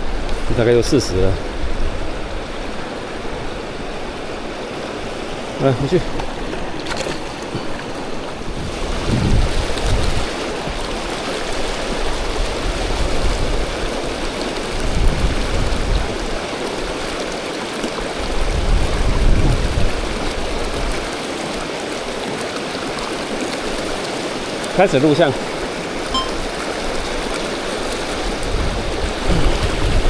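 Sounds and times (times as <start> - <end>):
wind on microphone: 0.0 - 5.4, 7.0 - 17.0, 18.2 - 21.1, 26.1 - 30.0
river water rushing over rapids: 0.0 - 30.0.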